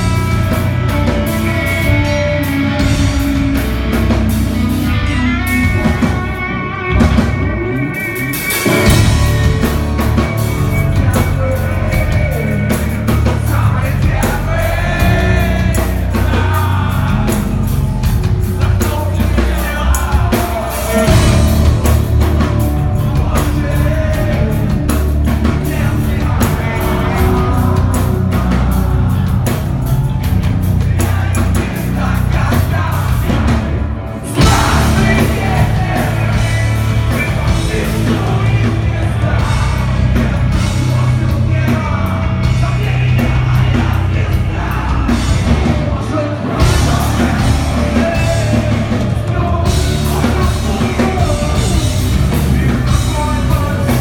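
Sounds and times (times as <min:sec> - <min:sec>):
live heavy rock band: 0:00.0 - 0:54.0.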